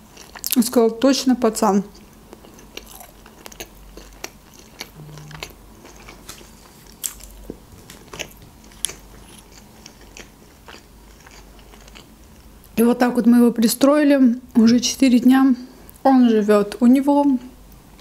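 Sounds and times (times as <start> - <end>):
person chewing food: 0.0 - 0.6, 1.9 - 12.8.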